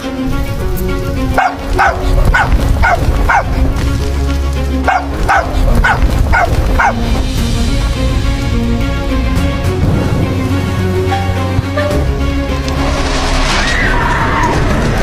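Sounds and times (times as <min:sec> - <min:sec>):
background music: 0:00.0 - 0:15.0
puppy yelping: 0:01.4 - 0:03.5, 0:04.9 - 0:07.0.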